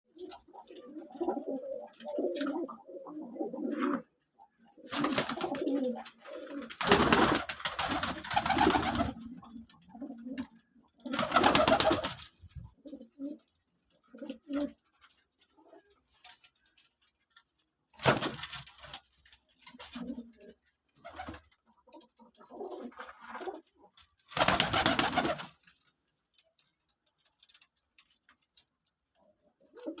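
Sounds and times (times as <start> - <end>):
pigeons cooing: 0.2 - 14.9, 19.8 - 23.9, 29.4 - 30.0.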